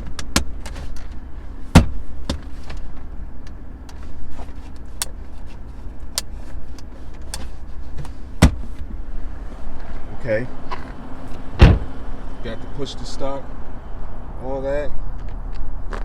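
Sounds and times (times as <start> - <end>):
steady low rumble: 0.0 - 16.0
loud thump: 1.7 - 2.5, 8.4 - 8.8, 11.6 - 12.0.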